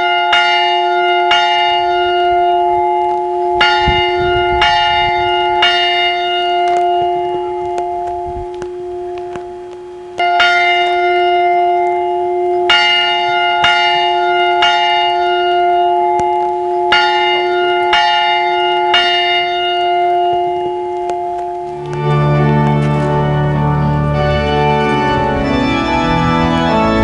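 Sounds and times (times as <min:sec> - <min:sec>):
bells ringing: 0:10.3 - 0:27.0.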